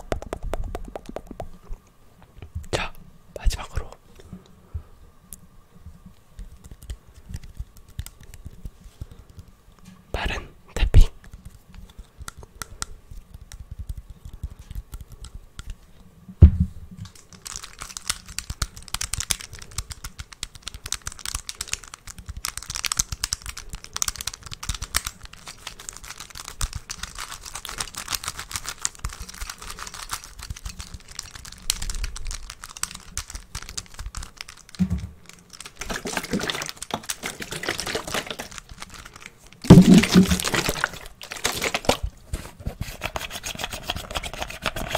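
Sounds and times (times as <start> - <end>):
rapid finger tapping: 0.0 - 1.7, 11.2 - 15.8.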